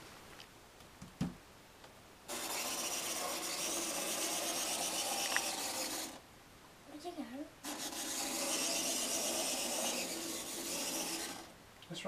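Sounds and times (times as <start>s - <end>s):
model train motor whirring: 2.3s - 6.2s, 7.6s - 11.5s.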